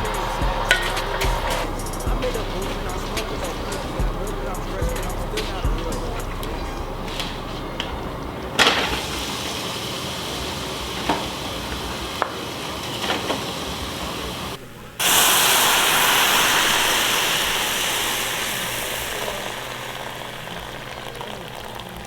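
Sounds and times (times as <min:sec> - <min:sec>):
food sizzling in a pan: 0:08.9 - 0:22.0.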